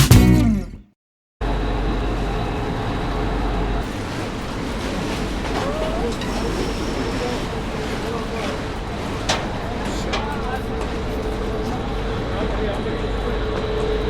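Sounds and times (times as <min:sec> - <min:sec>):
music: 0:00.0 - 0:00.9
water and wind noise: 0:03.6 - 0:13.2.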